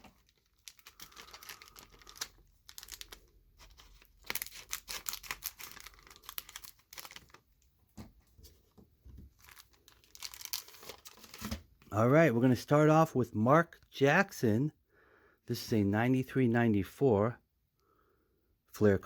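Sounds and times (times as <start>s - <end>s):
card wrapper crinkling and tearing: 0.0s - 7.6s, 9.3s - 11.6s.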